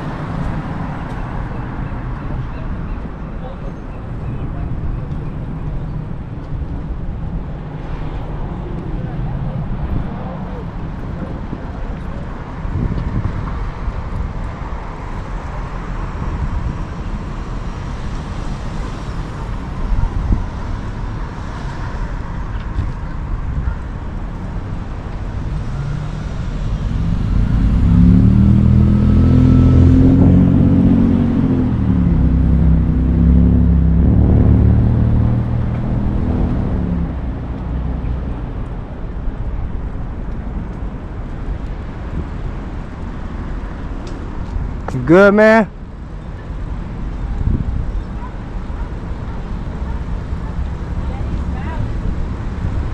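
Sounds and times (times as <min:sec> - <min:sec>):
motor vehicle passing: 0:00.0 - 0:52.9
road and wind rumble: 0:00.0 - 0:52.9.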